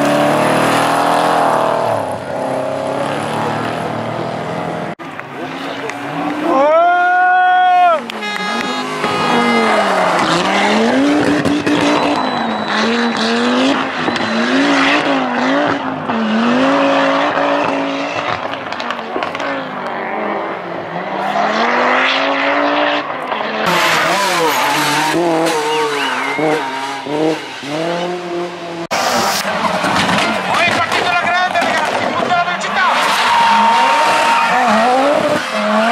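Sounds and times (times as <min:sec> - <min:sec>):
rally car engine revving: 0:00.0 - 0:35.9.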